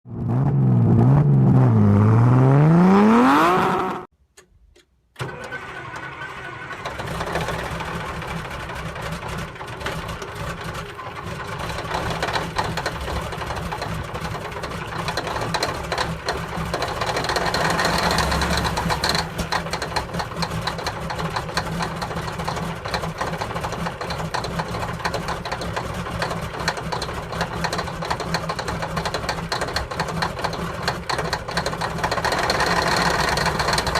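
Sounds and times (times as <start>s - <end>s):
loud rising revving: 0.1s - 4.1s, 17.5s - 19.2s
diesel engine clattering: 5.2s - 33.9s.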